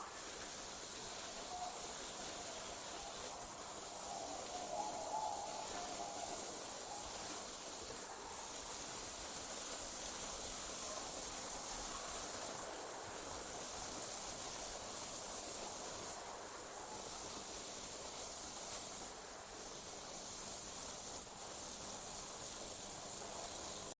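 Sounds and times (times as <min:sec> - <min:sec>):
insects trilling: 0:00.0 - 0:12.6
faint hiss of night air: 0:00.0 - 0:24.0.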